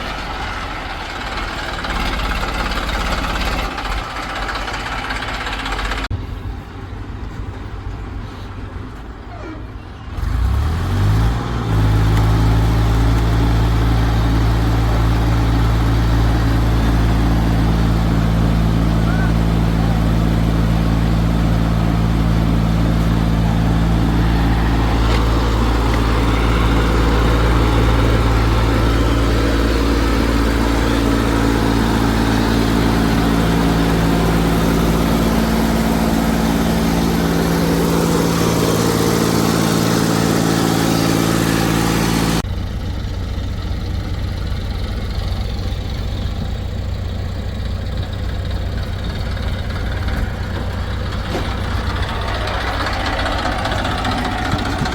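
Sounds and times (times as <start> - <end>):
heavy machinery diesel engines: 0.0 - 54.9
quieter engine: 0.0 - 54.9.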